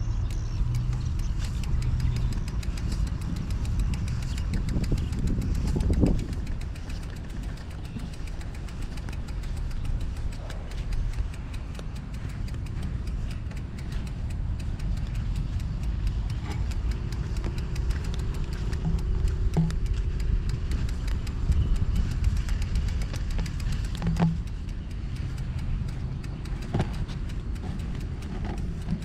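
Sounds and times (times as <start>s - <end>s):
steady engine hum: 0.0s - 29.0s
steady low rumble: 0.0s - 29.0s
vehicle engines running: 0.0s - 29.0s.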